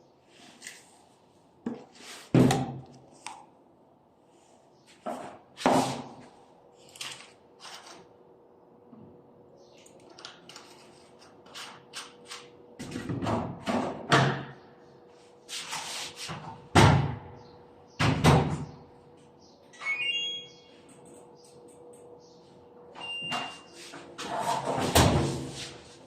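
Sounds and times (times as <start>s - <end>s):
brief electronic tone: 19.8s - 20.9s
electronic beeps: 19.8s - 20.9s.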